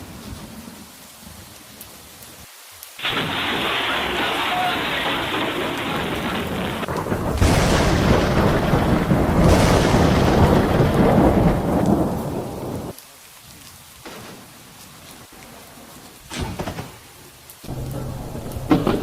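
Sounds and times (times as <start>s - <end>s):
heavy rain: 0.0s - 19.0s
thunder cracks and rumble: 3.0s - 13.0s, 17.7s - 19.0s.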